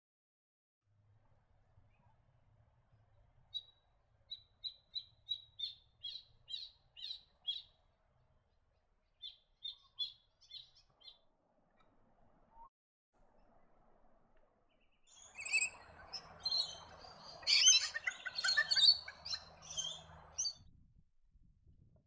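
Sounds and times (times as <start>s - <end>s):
bird calling sharp notes: 15.1s - 20.6s.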